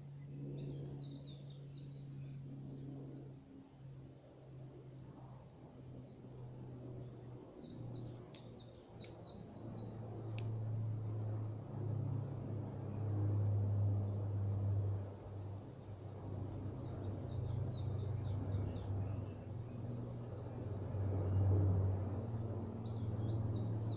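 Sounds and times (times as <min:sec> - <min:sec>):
steady low rumble: 0:05.1 - 0:23.9
campfire crackling pops: 0:08.1 - 0:09.2.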